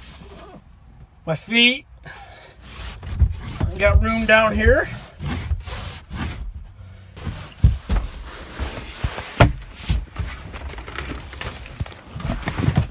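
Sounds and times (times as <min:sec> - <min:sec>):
rustling: 0:02.6 - 0:12.9
thumps and knocks on wood: 0:07.2 - 0:12.9.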